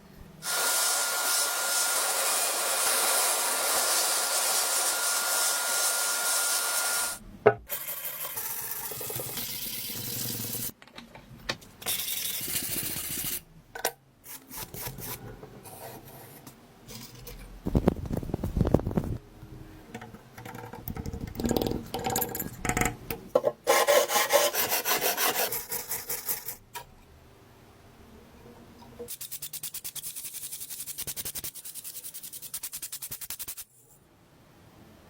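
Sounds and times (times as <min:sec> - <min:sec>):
rubbing and scraping strokes: 0:29.1 - 0:34.0.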